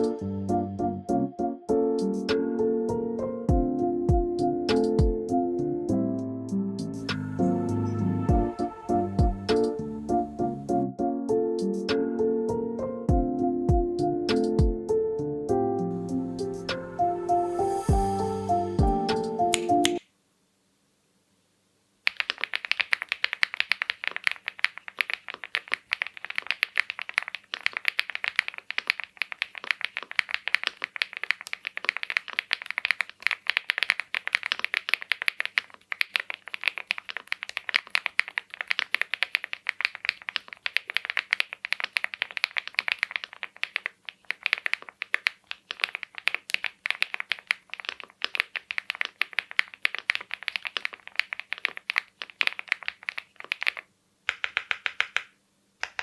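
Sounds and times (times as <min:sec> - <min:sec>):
mechanical keyboard typing: 0:22.1 - 0:56.0.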